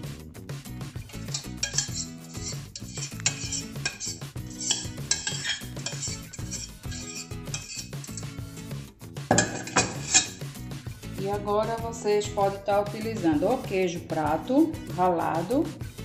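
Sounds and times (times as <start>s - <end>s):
background music: 0.0s - 16.0s
spoon scraping a metal saucepan: 1.0s - 8.6s, 9.3s - 10.6s.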